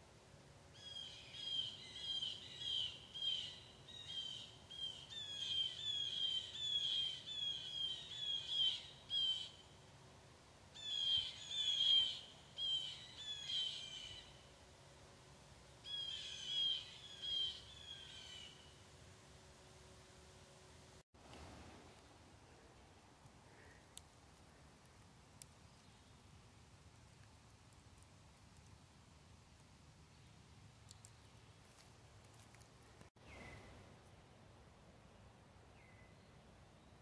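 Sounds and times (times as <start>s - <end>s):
songbird singing: 0.7s - 9.8s, 10.7s - 14.6s, 15.8s - 18.9s, 25.4s - 26.4s, 30.0s - 37.0s.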